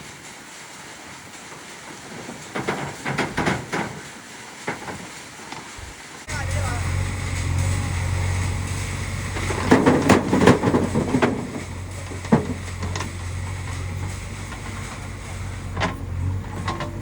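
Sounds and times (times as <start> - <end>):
rocks clattering into trolley: 1.5 - 17.0
diesel engine running: 5.7 - 17.0.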